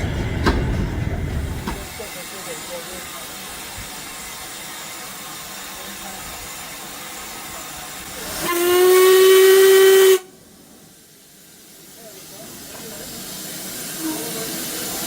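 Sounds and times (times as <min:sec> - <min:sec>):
steam locomotive hissing: 0:00.0 - 0:15.0
steam whistle long note: 0:08.2 - 0:10.3.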